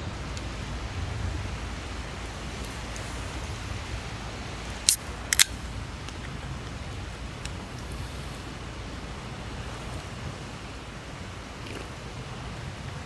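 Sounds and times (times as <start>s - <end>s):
sharp clicks: 4.9s - 5.6s.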